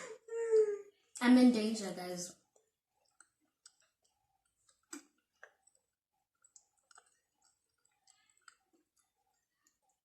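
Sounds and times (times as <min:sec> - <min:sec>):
chewing mouth sounds: 0:02.9 - 0:10.0.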